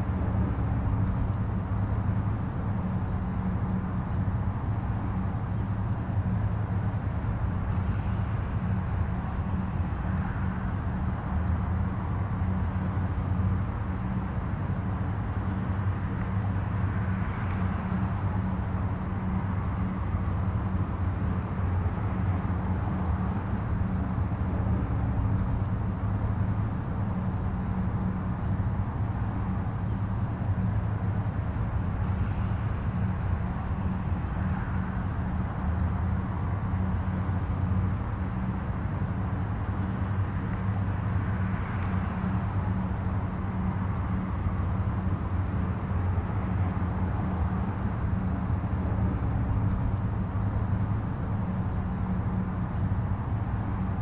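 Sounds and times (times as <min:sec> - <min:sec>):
distant highway traffic rumble: 0:00.0 - 0:54.0.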